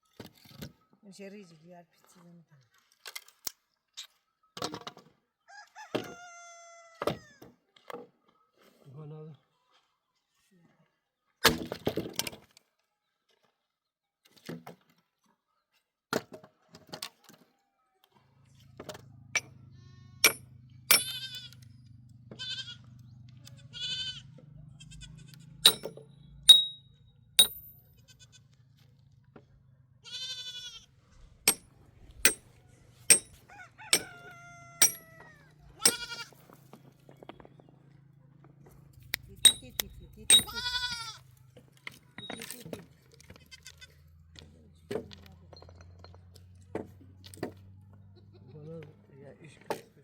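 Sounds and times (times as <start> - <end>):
sheep and goats bleating: 19.7 - 20.2, 21.0 - 21.6, 22.3 - 25.6, 28.0 - 28.4, 30.0 - 30.9, 34.2 - 36.4, 40.3 - 41.3, 43.3 - 44.0, 48.1 - 48.6
sharp clicks and knocks: 20.2 - 21.3, 31.5 - 32.5, 33.1 - 34.2, 34.8 - 35.1, 39.0 - 40.6.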